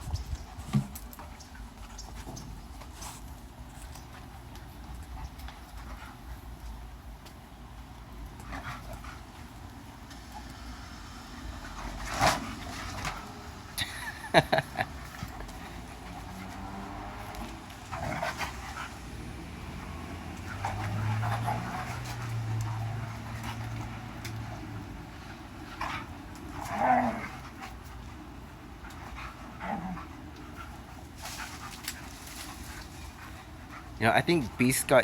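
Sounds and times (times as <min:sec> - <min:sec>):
dogs panting: 0:00.2 - 0:35.0
dogs scuffling: 0:11.2 - 0:35.0.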